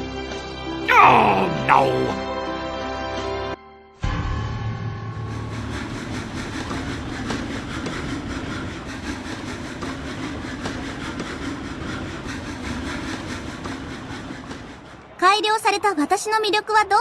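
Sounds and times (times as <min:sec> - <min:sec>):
train rumbling on track: 0:05.2 - 0:15.0.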